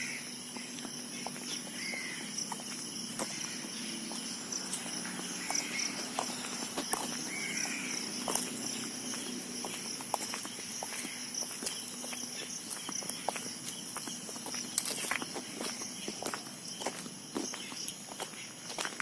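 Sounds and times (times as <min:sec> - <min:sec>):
high-pitched insect drone: 0:00.0 - 0:18.5
footsteps on path: 0:00.0 - 0:19.0
bird calling: 0:01.1 - 0:02.3, 0:05.4 - 0:08.0.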